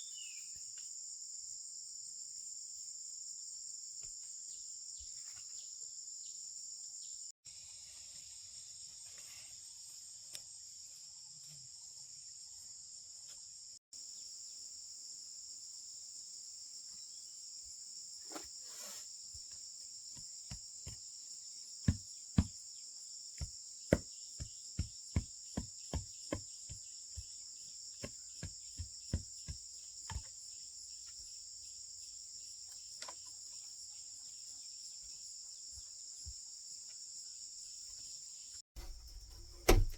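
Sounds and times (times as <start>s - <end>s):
insect chorus: 0.0s - 39.9s
sharp knocks: 38.8s - 39.9s.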